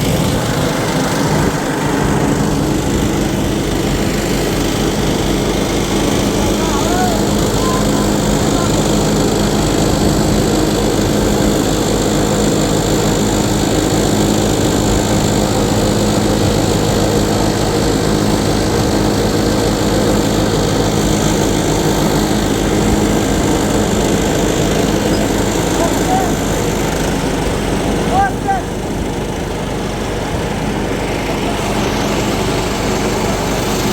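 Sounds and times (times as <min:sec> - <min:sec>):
small engine running: 0:00.0 - 0:33.9.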